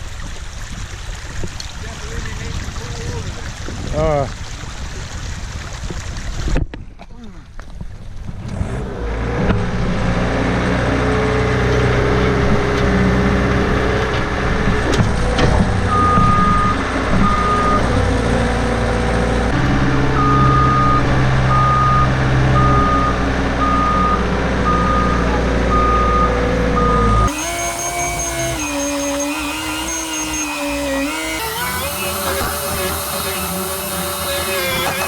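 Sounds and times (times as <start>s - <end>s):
skid steer engine running: 8.5s - 35.0s
reversing alarm beeping: 15.9s - 17.9s, 20.1s - 35.0s.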